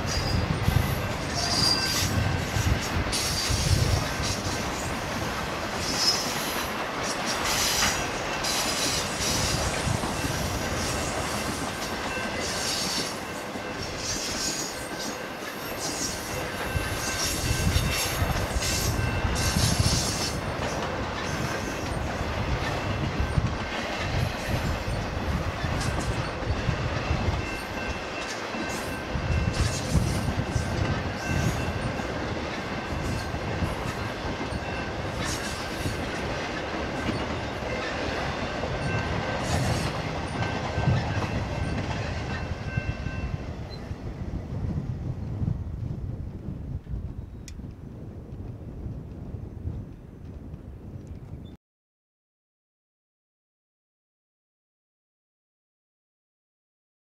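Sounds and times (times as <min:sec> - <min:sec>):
steel wheels rumbling on rail: 0:00.0 - 0:51.5
high-pitched wheel squeal: 0:00.1 - 0:02.2.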